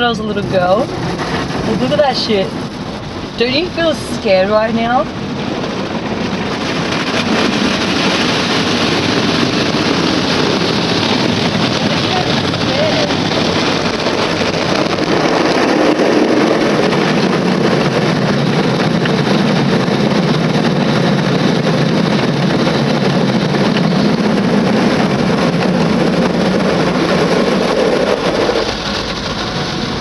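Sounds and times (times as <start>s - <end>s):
car wash water and machinery rushing: 0.0s - 30.0s.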